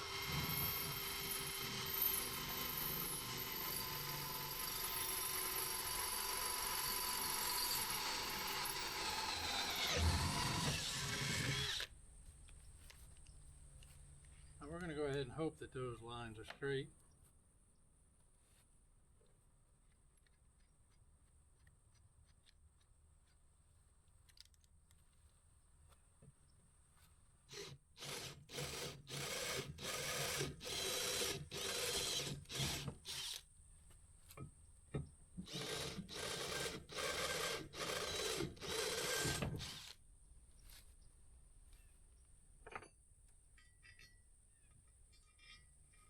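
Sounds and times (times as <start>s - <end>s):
power tool working steel: 0.0s - 11.9s, 27.5s - 33.4s, 35.4s - 40.0s.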